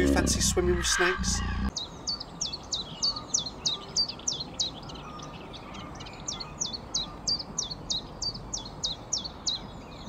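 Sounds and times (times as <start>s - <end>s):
songbird high descending note: 0.0s - 1.7s.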